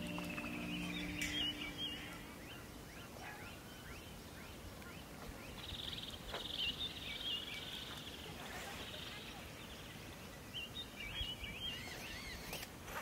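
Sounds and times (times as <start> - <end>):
buzzy bird trill: 0.0 - 3.1
bird chirps: 0.0 - 12.6.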